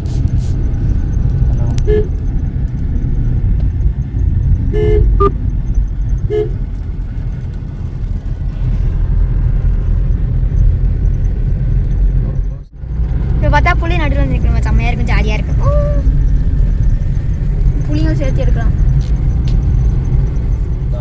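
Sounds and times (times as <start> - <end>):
vehicle rumble on road: 0.0 - 21.0
car horn toots: 1.7 - 2.2, 4.7 - 5.4, 6.2 - 6.7.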